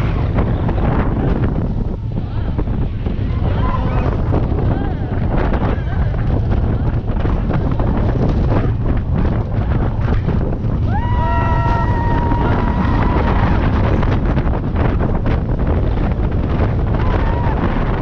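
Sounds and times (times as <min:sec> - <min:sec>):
roller coaster train rumble: 0:00.0 - 0:18.0
wind buffeting microphone: 0:00.0 - 0:18.0
rider whooping: 0:10.8 - 0:14.2, 0:16.8 - 0:18.0.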